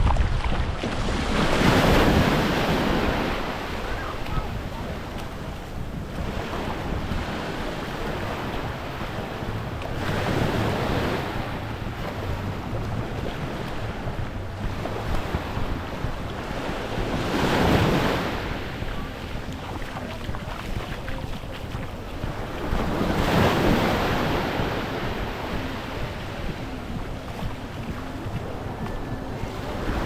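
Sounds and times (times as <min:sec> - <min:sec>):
waves washing onto beach: 0:00.0 - 0:30.0
wind buffeting microphone: 0:00.0 - 0:30.0.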